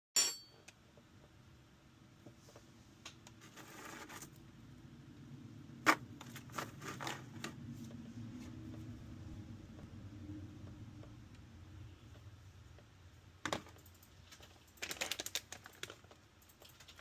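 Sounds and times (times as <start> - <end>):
tableware clicks and taps: 0.2 - 0.7
low steady hum: 0.2 - 17.0.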